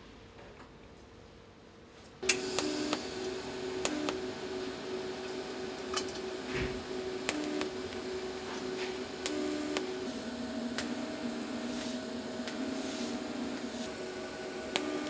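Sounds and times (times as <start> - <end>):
machine hum: 2.2 - 15.0
sharp metallic clicks: 9.2 - 10.1.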